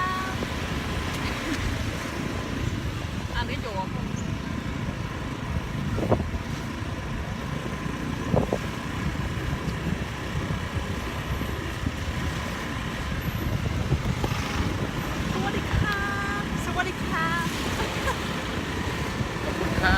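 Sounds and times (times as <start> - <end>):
road traffic: 0.0 - 19.9
motorbike engine: 5.7 - 19.9.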